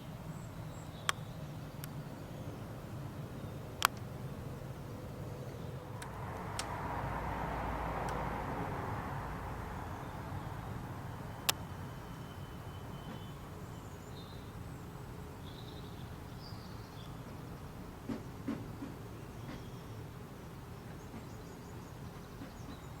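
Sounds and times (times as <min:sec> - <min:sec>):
distant jet rumble: 0:00.1 - 0:13.7
faint bird chirps: 0:09.7 - 0:17.7.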